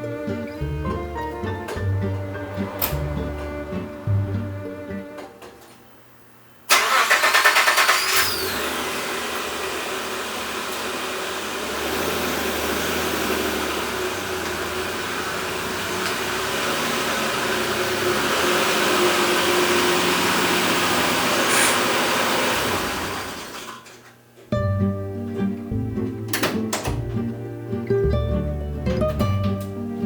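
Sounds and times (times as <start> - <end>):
engine starter cranking: 6.7 - 9.6
car engine idling: 6.7 - 23.6
engine squeal: 6.8 - 8.6, 16.2 - 22.2.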